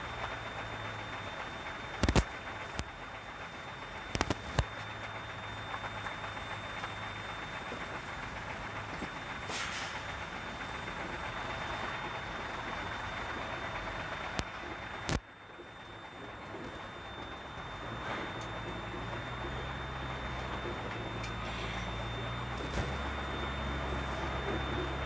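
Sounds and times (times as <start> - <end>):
truck engine running: 0.0 - 25.0
sharp clicks: 2.0 - 2.9, 4.1 - 4.7.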